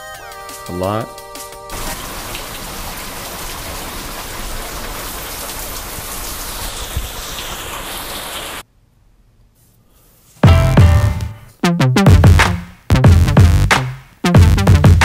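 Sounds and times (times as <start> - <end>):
heavy rain on bricks: 1.7 - 8.6.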